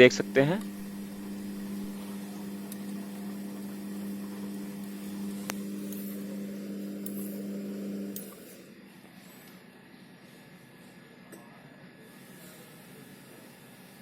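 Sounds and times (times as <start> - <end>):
washing machine humming: 0.0 - 10.6.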